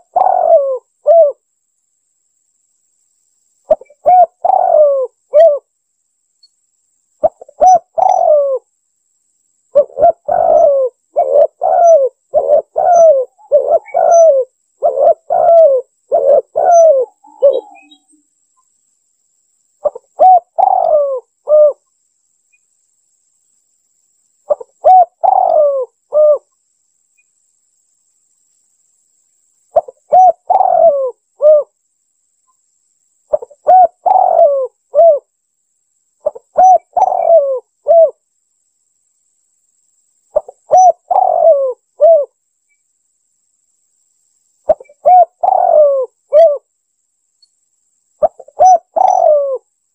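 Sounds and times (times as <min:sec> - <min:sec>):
dove cooing: 0:00.0 - 0:01.4, 0:03.7 - 0:05.7, 0:07.2 - 0:08.7, 0:09.7 - 0:18.1, 0:19.8 - 0:21.8, 0:24.5 - 0:26.5, 0:29.7 - 0:31.7, 0:33.3 - 0:35.3, 0:36.2 - 0:38.2, 0:40.4 - 0:42.3, 0:44.7 - 0:46.7, 0:48.2 - 0:49.7.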